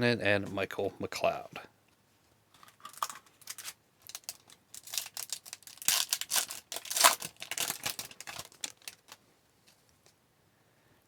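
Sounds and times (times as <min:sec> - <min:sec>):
wrapper tearing and crinkling: 0:02.6 - 0:09.2.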